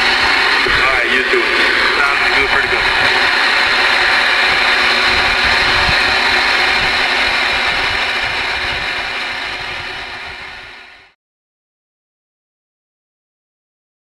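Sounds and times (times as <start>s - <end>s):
radio static hiss and crackle: 0.6s - 6.8s.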